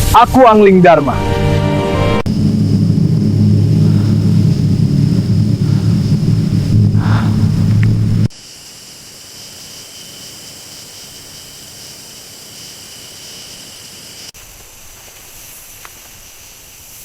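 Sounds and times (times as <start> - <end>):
low rumble: 2.2 - 8.3
insect chorus: 2.3 - 17.0.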